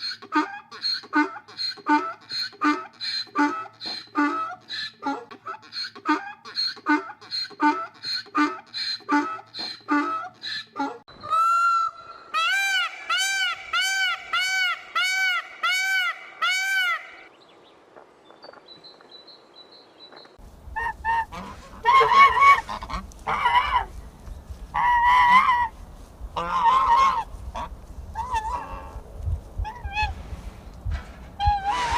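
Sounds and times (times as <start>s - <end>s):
goose honking: 0.0s - 17.3s, 20.7s - 24.0s, 24.7s - 29.0s
peacock calling: 0.0s - 17.3s, 20.7s - 25.8s
low rumble: 20.5s - 31.9s.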